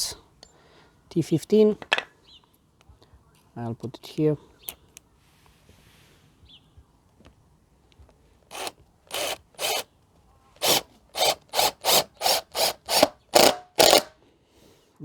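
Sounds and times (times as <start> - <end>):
impact driver driving screw into wood: 8.5 - 9.8, 10.6 - 14.1.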